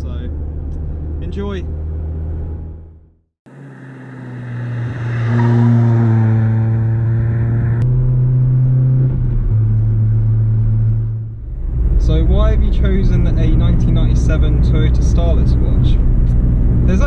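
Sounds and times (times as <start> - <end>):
car engine running: 9.3 - 17.0.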